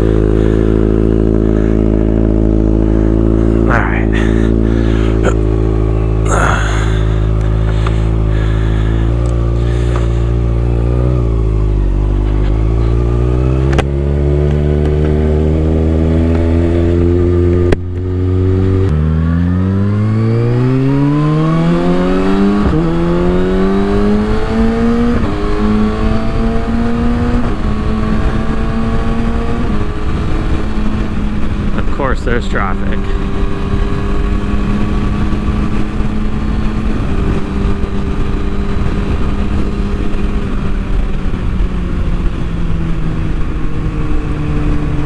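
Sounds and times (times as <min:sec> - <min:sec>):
motorcycle engine accelerating: 0:00.0 - 0:45.0
wind buffeting microphone: 0:20.0 - 0:32.4, 0:33.0 - 0:45.0.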